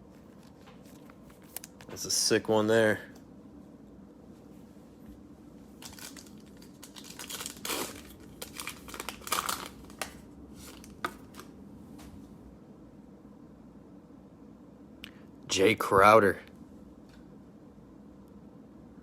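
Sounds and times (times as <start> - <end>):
cellophane wrapper crinkling: 5.7 - 11.5.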